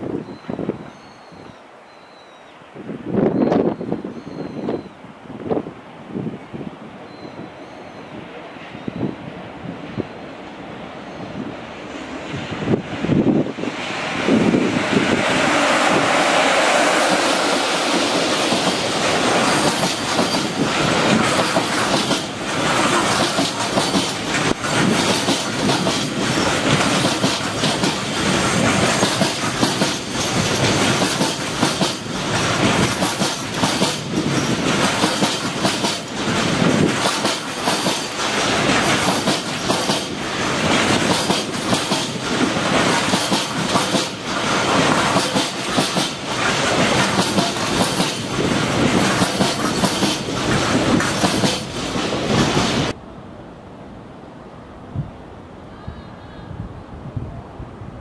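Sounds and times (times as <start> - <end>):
freight train passing: 0.0 - 58.0
wheels clacking over rail joints: 14.8 - 53.0.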